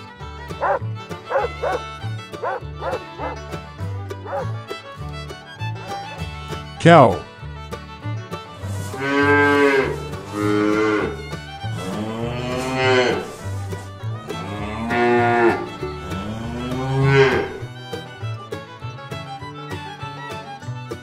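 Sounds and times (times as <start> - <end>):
cows mooing: 0.6 - 1.8, 2.4 - 3.4, 4.3 - 4.5, 8.6 - 17.7.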